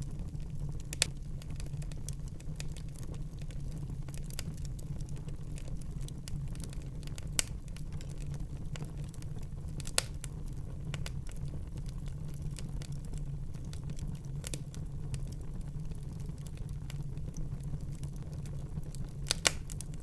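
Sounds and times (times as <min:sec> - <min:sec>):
low fire rumble: 0:00.0 - 0:20.0
wood fire crackling: 0:00.0 - 0:20.0
sharp fire pops: 0:09.8 - 0:11.2, 0:18.9 - 0:20.0.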